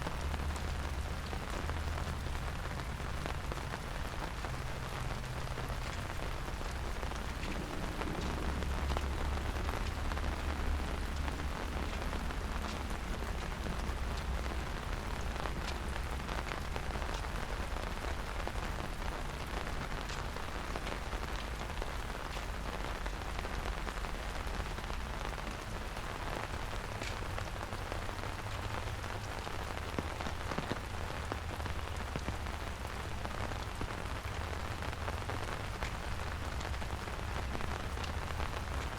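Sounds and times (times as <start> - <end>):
raindrops ticking: 0.0 - 38.9
steady rain falling: 0.0 - 38.9
low rumble: 0.1 - 17.0.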